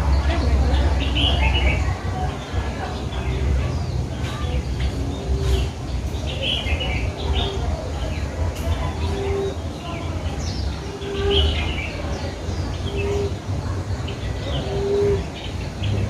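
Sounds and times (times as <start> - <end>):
birds chirping and twittering: 0.0 - 16.0.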